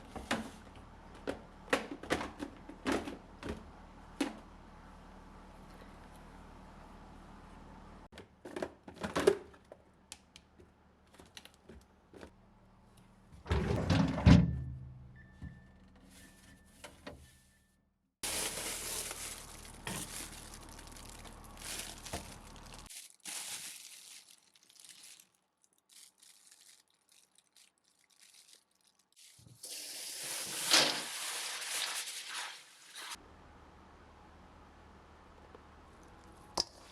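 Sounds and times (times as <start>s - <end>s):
rustling: 18.2s - 33.2s.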